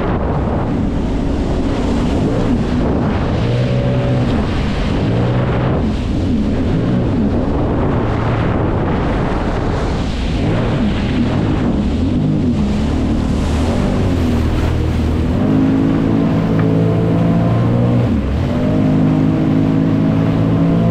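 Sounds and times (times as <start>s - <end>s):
jet ski engine running: 0.0s - 20.9s
rush of water and wind: 0.0s - 20.9s.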